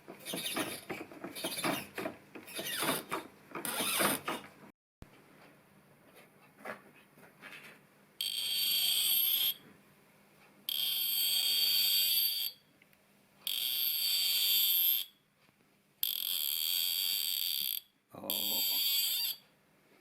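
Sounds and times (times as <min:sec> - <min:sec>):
cutting tool squealing in brass: 0:18.3 - 0:19.4.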